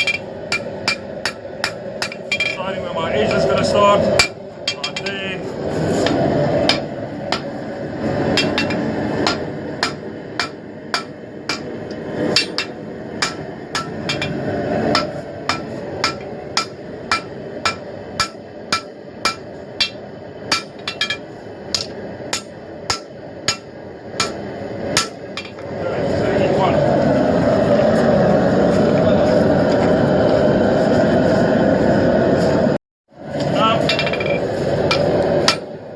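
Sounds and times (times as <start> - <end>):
hammer striking steel on anvil: 0.0 - 2.7, 4.2 - 5.2, 8.3 - 25.6, 33.8 - 35.7
steady rushing noise: 0.0 - 35.9.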